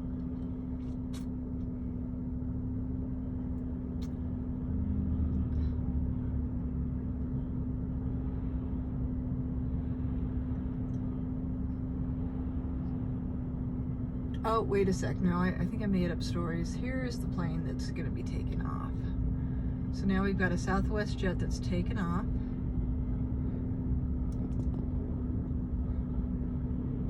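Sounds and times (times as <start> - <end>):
constant hum: 0.0 - 27.0
low engine rumble: 0.0 - 27.0.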